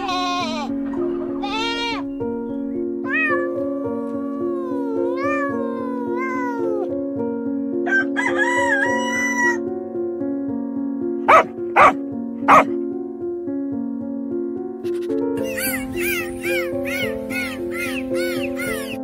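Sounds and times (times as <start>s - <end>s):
background music: 0.0s - 19.0s
cat meowing: 3.0s - 6.9s, 15.4s - 19.0s
rooster crowing: 7.9s - 9.6s.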